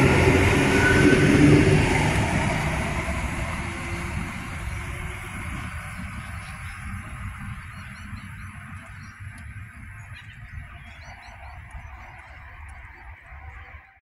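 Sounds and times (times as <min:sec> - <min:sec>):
electric train rumbling: 0:00.0 - 0:14.0
small birds chirping: 0:04.5 - 0:13.9.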